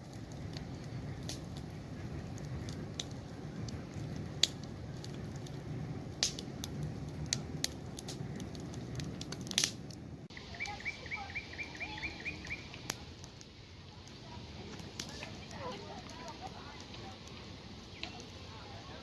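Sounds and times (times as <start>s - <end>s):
campfire crackling and popping: 0.0s - 19.0s
low rumble of flames: 0.0s - 19.0s
small bird chirping: 10.3s - 12.9s.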